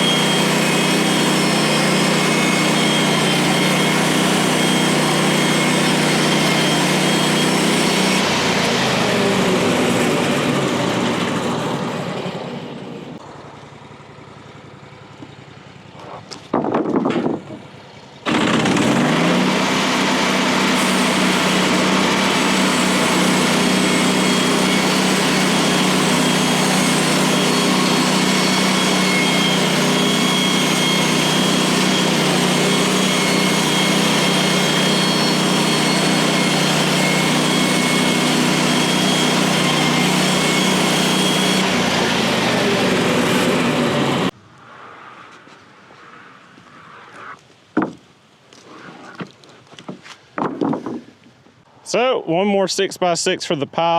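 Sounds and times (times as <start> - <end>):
blade sawing a log: 0.0 - 12.0, 18.2 - 44.3
sawmill engine running: 0.0 - 44.4
short bumps: 15.2 - 18.9, 45.3 - 51.6.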